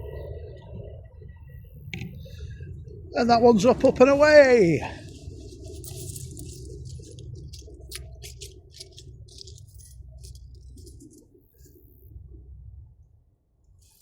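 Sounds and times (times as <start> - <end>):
jet engines rumbling: 0.0 - 11.8
light rattling and clicking: 5.4 - 11.3.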